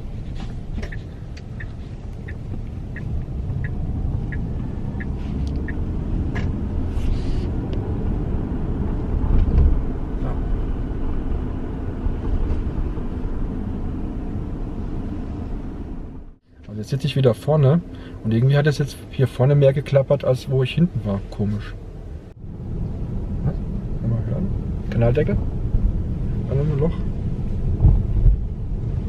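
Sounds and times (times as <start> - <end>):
tyre and road rumble: 0.0 - 16.9
light regular ticking: 0.8 - 5.9.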